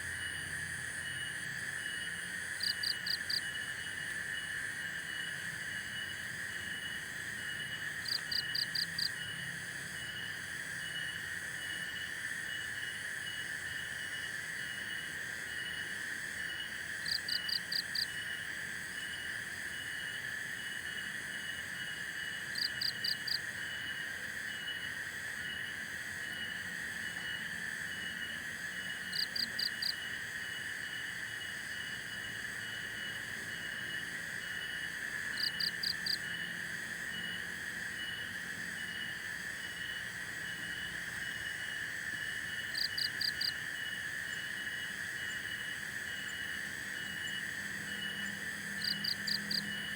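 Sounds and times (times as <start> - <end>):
faint pulsing insect chirp: 0.0 - 49.9
insects buzzing drone: 0.0 - 49.9.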